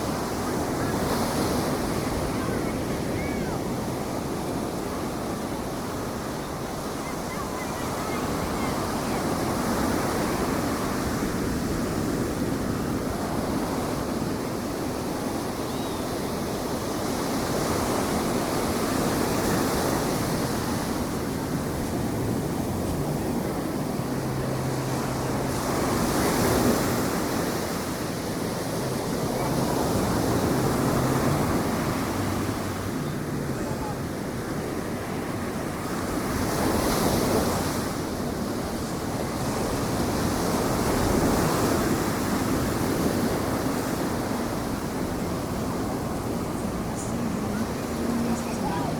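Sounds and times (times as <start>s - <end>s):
ocean surf washing onto beach: 0.0s - 48.9s.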